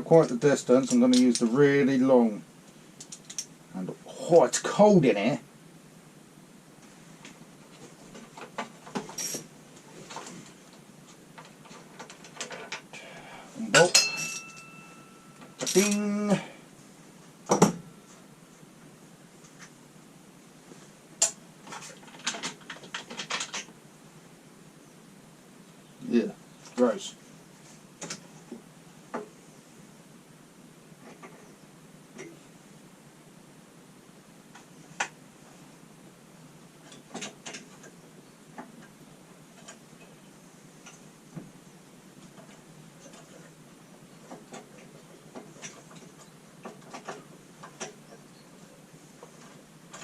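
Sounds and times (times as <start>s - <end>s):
tools and bolts clinking: 8.4s - 9.5s, 13.7s - 16.2s.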